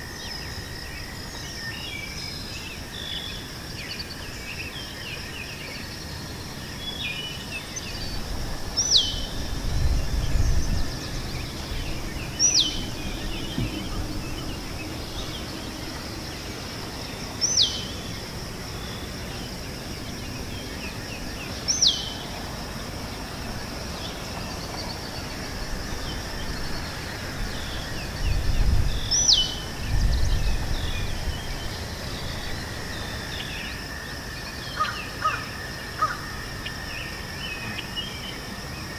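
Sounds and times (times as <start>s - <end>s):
insects droning: 0.0s - 38.9s
wind buffeting microphone: 7.7s - 33.5s.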